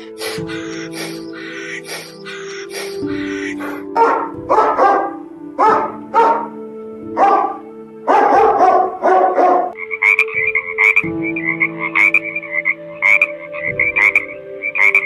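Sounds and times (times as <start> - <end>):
frog croaking: 0.0 - 3.9, 9.7 - 15.0
dog barking: 4.0 - 6.5, 7.2 - 9.8.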